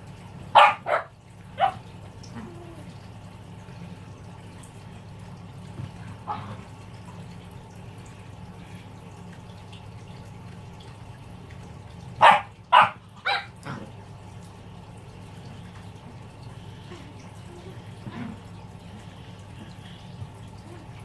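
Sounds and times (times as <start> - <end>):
steady low hum: 0.0 - 21.0
puppy barking: 0.5 - 1.9, 12.2 - 13.8.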